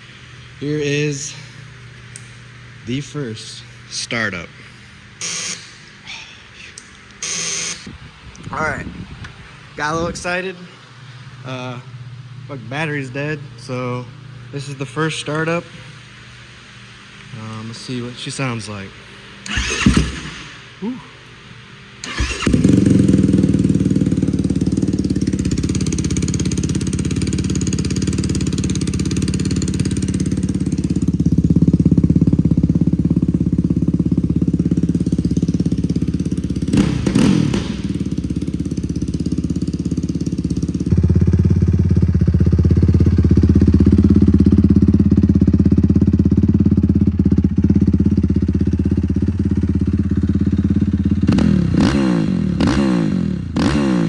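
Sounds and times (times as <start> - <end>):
quad bike engine idling and revving: 5.2 - 5.8, 7.2 - 7.9, 19.4 - 20.8, 22.0 - 54.0.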